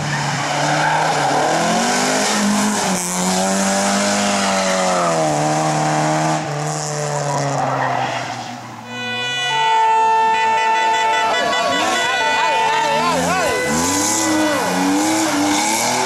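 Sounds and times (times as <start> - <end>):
rally car engine revving: 0.0 - 8.8, 12.8 - 16.0.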